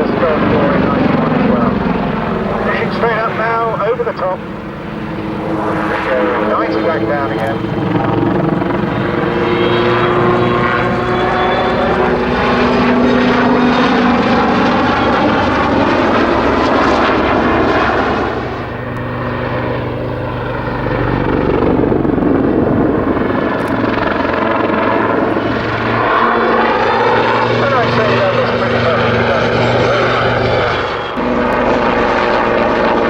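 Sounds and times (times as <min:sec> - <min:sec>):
helicopter rotor and engines: 0:00.0 - 0:33.0.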